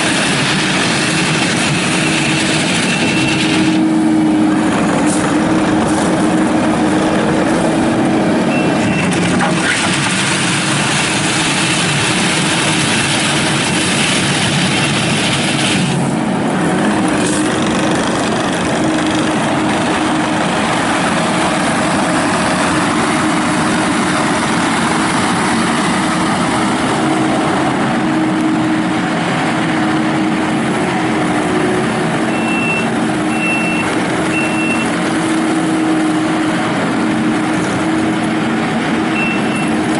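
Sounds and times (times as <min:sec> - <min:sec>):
diesel engine running: 0:00.0 - 0:39.9
backup alarm beeping: 0:32.3 - 0:34.9, 0:39.2 - 0:39.8.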